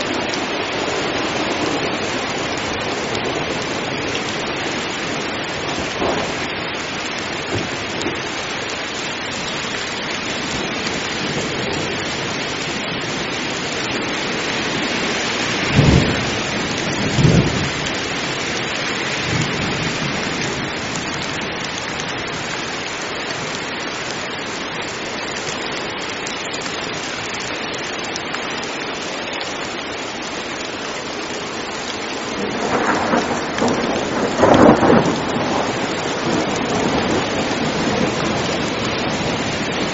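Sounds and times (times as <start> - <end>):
heavy rain: 0.0 - 39.9
rolling thunder: 5.7 - 6.5, 15.6 - 17.9, 32.3 - 39.9
thunder claps: 5.7 - 6.5, 15.6 - 17.9, 32.4 - 39.9.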